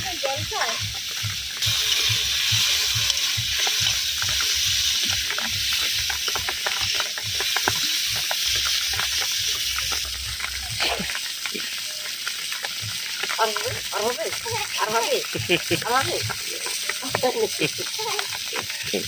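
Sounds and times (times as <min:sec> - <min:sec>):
rain falling: 0:00.0 - 0:19.0
water drips and splashes: 0:00.0 - 0:19.0.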